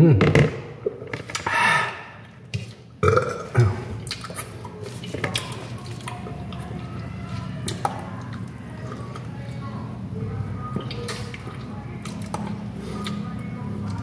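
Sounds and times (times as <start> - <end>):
wet chewing: 2.2 - 9.8, 10.6 - 14.0.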